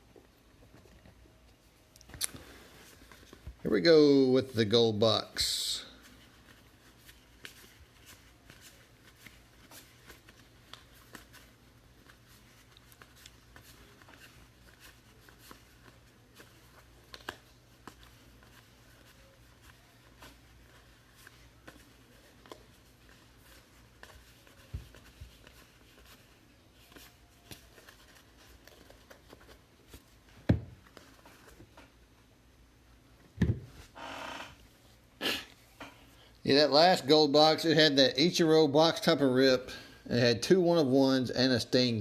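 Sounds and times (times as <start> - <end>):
card wrappers rustling: 5.7 - 31.8.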